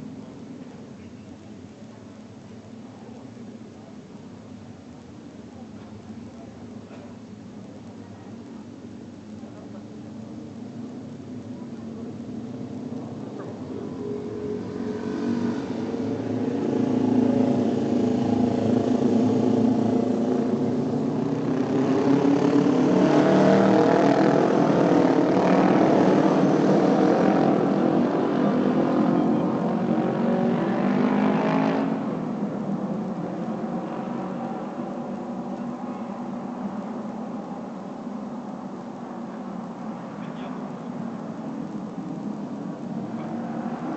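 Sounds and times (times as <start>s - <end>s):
motorcycle engines racing: 11.6s - 43.9s.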